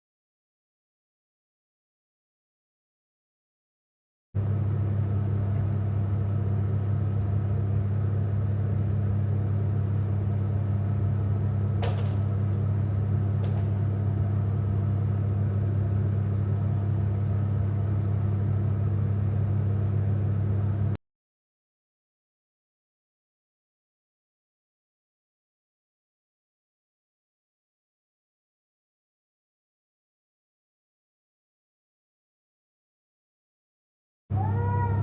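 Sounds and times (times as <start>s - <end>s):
low electrical hum: 4.4s - 21.0s, 34.3s - 35.0s.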